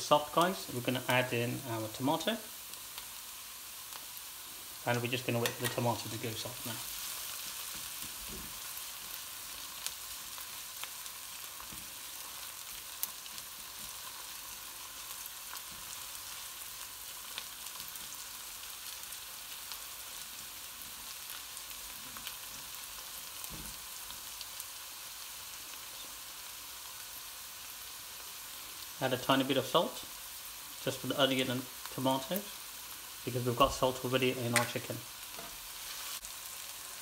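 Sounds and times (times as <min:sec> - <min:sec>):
vegetables sizzling in a wok: 0:00.0 - 0:37.0.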